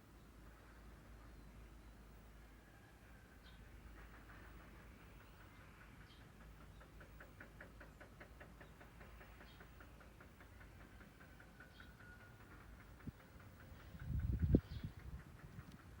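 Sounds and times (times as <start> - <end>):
low steady rumble: 12.8 - 16.0.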